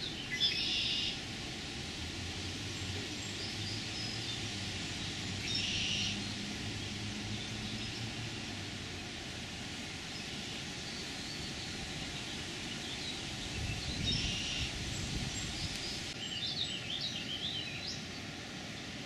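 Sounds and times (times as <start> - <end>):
outdoor background hiss: 0.0 - 19.0
bird chirps: 12.8 - 14.7.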